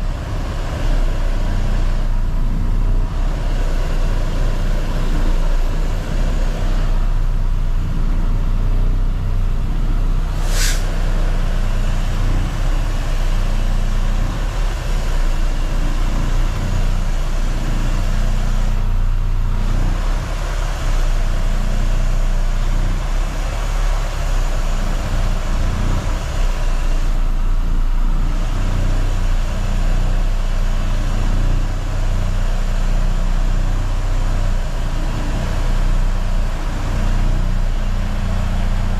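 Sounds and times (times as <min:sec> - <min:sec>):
truck diesel engine running: 0:00.0 - 0:38.9
brief sharp hiss: 0:10.4 - 0:11.0.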